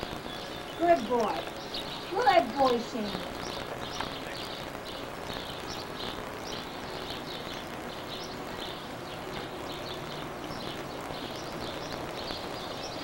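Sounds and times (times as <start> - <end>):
small birds chirping: 0.0 - 13.0
steady background hiss: 0.0 - 13.0.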